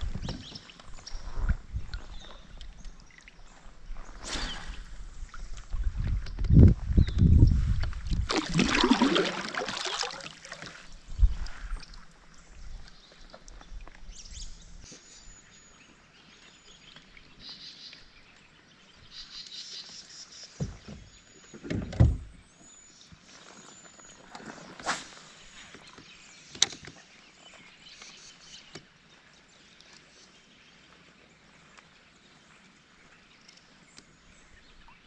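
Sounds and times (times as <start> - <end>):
kayak splashing in water: 8.1 - 12.1.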